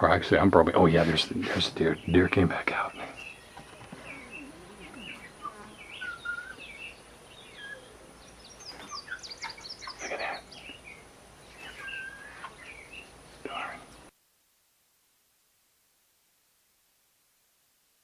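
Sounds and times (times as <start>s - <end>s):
birds chirping and calling: 0.6s - 14.0s.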